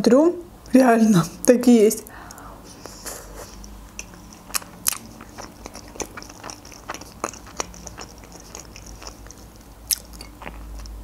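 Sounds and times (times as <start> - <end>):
person chewing food: 2.3 - 11.0.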